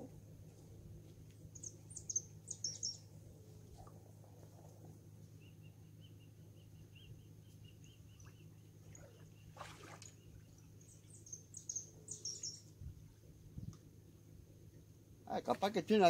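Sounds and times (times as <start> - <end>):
distant engine hum: 0.0 - 16.0
small birds chirping: 1.2 - 13.9.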